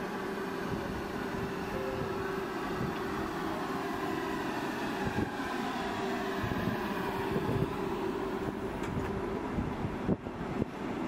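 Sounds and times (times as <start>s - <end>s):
steady humming tone: 0.0s - 11.0s
train wheels rumbling on rail: 0.0s - 11.0s.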